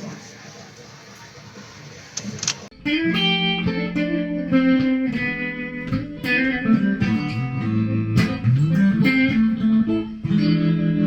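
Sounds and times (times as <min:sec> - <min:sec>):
electric guitar played: 0:02.7 - 0:11.0.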